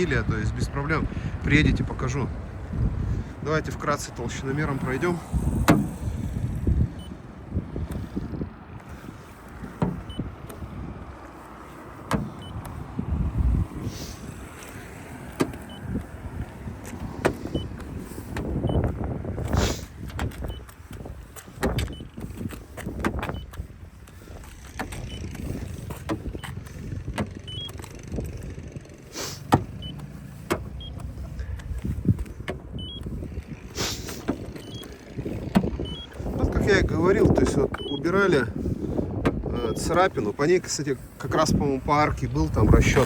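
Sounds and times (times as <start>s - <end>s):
knocks and handling noise: 9.5s - 10.6s, 12.0s - 12.8s, 19.4s - 28.5s, 29.5s - 32.8s.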